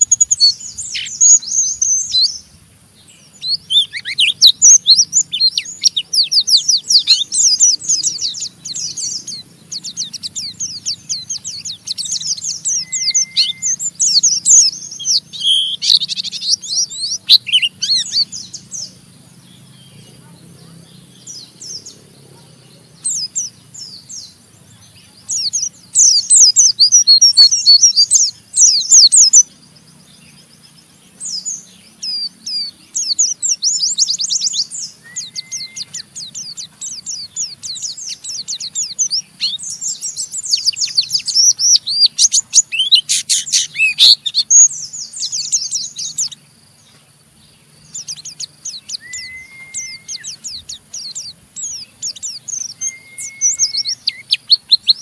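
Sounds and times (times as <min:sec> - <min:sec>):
bird twittering: 0:00.0 - 0:55.0
short flat whistle: 0:49.1 - 0:50.2.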